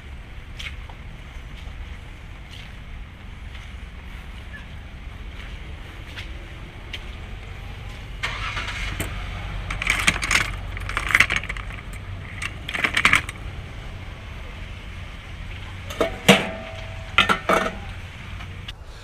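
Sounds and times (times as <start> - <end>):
car engine low rumble: 0.0 - 19.0
clattering clinking noise: 9.0 - 13.4, 15.9 - 18.0.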